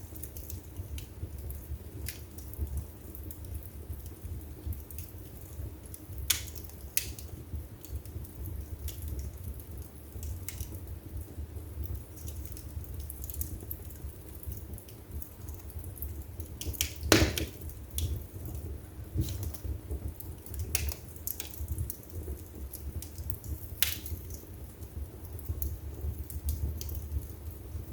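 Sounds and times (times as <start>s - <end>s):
fire crackling and popping: 0.0s - 27.9s
low rumble of flames: 0.0s - 27.9s.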